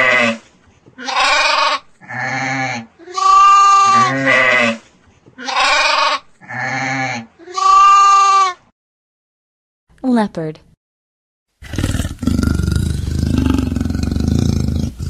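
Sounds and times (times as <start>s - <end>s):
sheep bleating: 1.0s - 4.8s, 5.4s - 8.6s.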